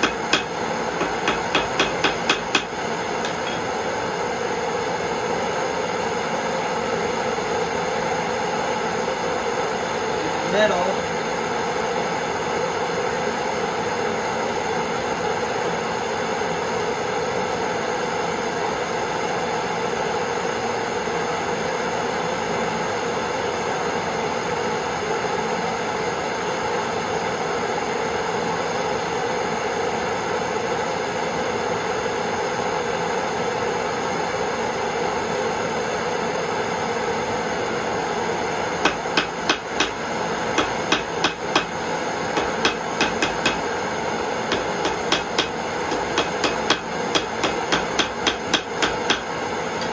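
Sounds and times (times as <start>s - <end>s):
hammer blows on hot metal: 0.0s - 3.7s, 38.9s - 43.8s, 44.5s - 49.9s
torch flame hissing: 38.8s - 49.9s.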